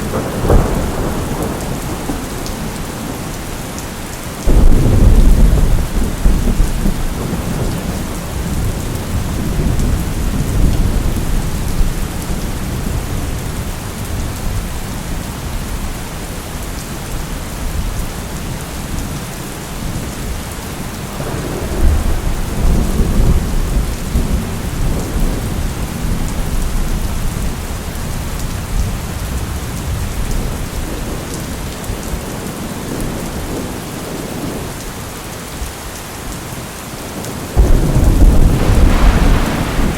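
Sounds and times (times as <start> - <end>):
rolling thunder: 0.0 - 3.2, 4.4 - 14.6, 21.2 - 31.5, 37.6 - 39.9
steady rain: 0.0 - 39.9.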